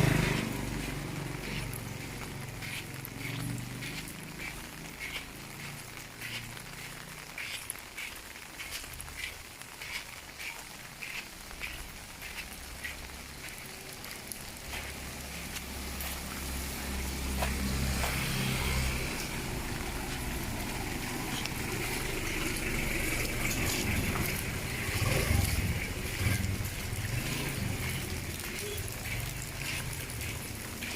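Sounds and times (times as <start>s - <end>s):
rain hissing: 0.0s - 30.9s
vehicle engine approaching: 0.0s - 30.9s.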